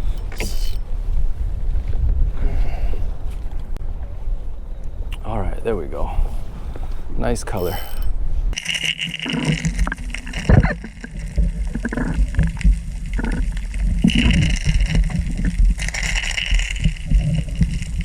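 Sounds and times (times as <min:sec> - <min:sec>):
water splashing around a kayak: 0:08.6 - 0:18.0.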